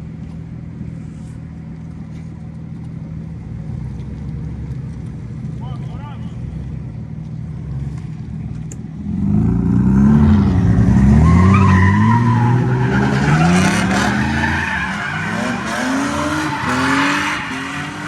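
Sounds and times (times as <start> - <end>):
car engine revving: 9.0 - 18.0.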